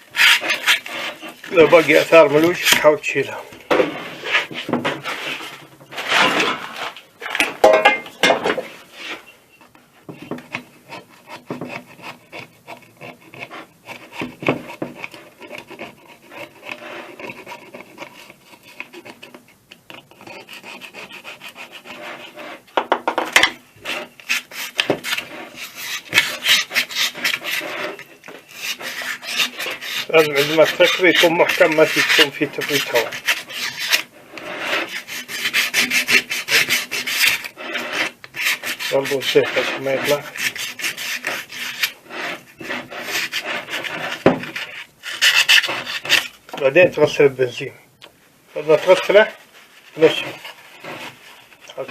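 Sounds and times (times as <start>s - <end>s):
sandpaper scraping on metal: 0.0s - 3.4s, 20.3s - 22.7s, 23.8s - 46.3s, 48.6s - 51.9s.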